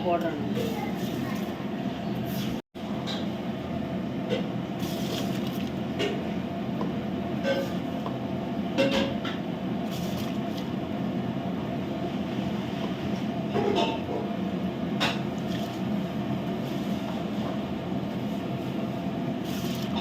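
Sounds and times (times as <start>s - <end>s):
pot boiling hard: 0.4s - 20.0s.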